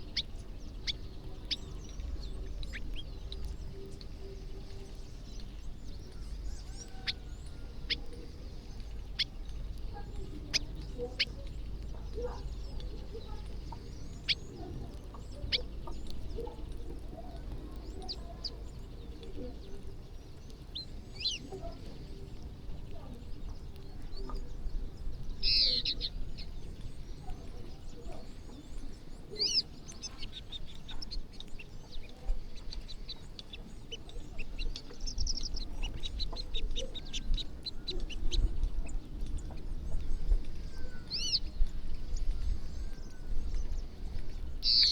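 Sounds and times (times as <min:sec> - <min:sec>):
birds chirping: 0:00.0 - 0:44.9.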